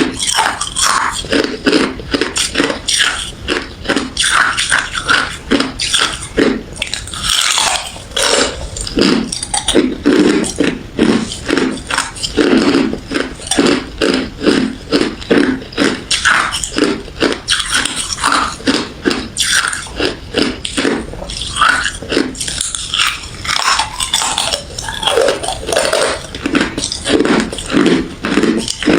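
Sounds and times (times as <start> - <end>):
person crunching ice: 0.0 - 28.9.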